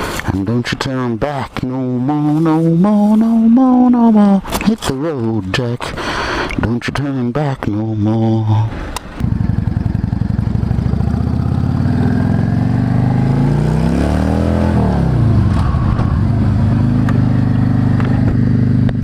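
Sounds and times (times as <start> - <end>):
motorcycle engine revving: 9.2 - 19.0.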